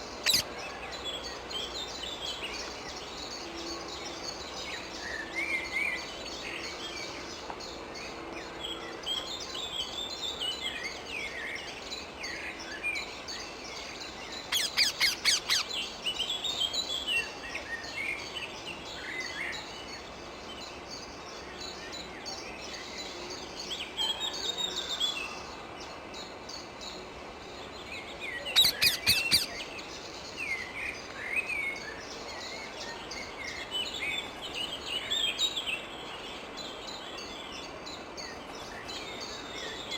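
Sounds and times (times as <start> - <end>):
birds twittering and chirping: 0.0 - 39.9
parakeets screeching: 0.2 - 0.5, 14.5 - 15.7, 28.6 - 29.6.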